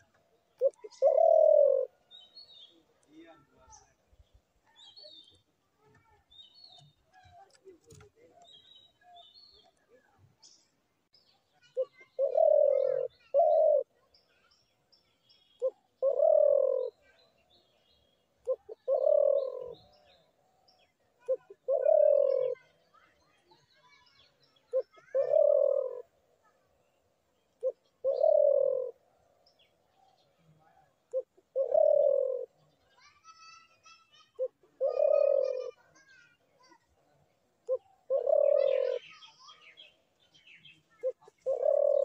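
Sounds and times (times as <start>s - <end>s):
dove cooing: 0.0s - 2.2s, 11.8s - 14.0s, 15.6s - 17.1s, 18.4s - 20.3s, 21.2s - 22.8s, 24.7s - 26.1s, 27.6s - 29.1s, 30.6s - 32.6s, 34.2s - 35.9s, 37.6s - 39.2s, 40.9s - 42.0s
small birds chirping: 0.0s - 42.0s.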